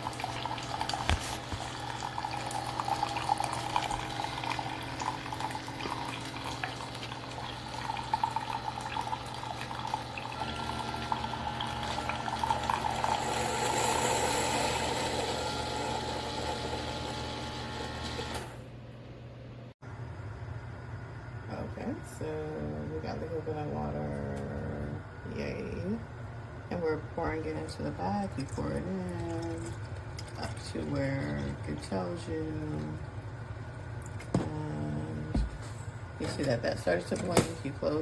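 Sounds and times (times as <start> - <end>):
hot water gurgling and sputtering: 0.0 - 16.8, 26.8 - 35.5
coffee maker pump humming: 0.0 - 18.8, 26.7 - 38.0.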